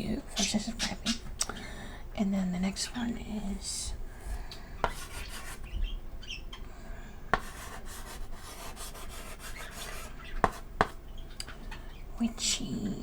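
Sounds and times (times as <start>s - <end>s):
birds chirping faintly: 0.0s - 13.0s
chalk tapping on board: 4.8s - 5.6s, 7.3s - 11.0s
chalk scraping on chalkboard: 4.8s - 5.7s, 7.3s - 11.0s.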